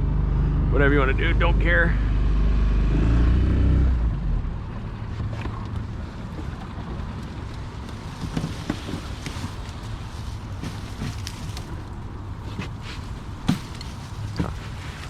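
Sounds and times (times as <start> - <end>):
boat motor running: 4.0 - 15.0
faint water: 4.3 - 15.0.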